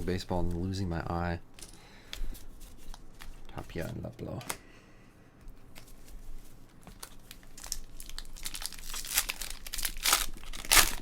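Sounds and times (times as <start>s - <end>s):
wrapper crinkling and tearing: 6.9s - 11.0s.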